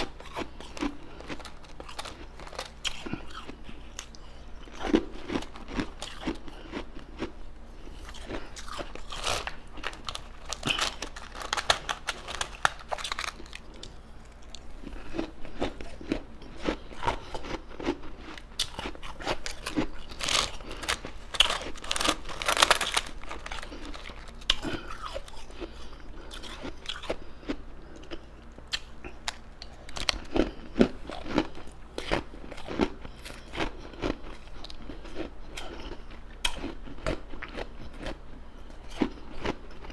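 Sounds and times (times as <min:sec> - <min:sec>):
chewing ice crunches: 0:00.0 - 0:38.2, 0:38.8 - 0:39.9.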